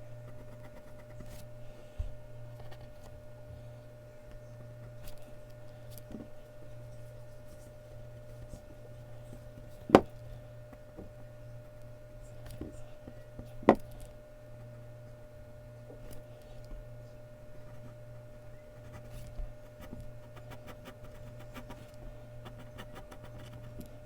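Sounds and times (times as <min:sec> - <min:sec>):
pencil scratching on paper: 0:18.8 - 0:24.0.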